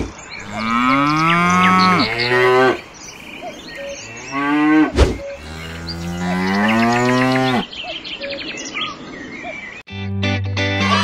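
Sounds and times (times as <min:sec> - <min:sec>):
cow mooing: 0:00.4 - 0:02.9, 0:03.9 - 0:07.7.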